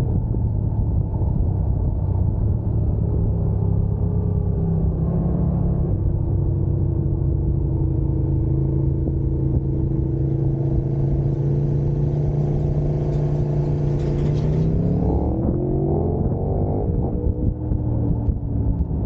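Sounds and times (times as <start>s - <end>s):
road and wind noise: 0.0s - 19.0s
motorcycle engine running: 7.3s - 15.6s.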